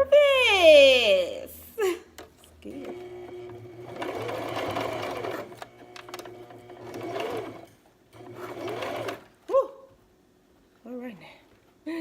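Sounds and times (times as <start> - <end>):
sewing machine motor whine: 2.6 - 9.3.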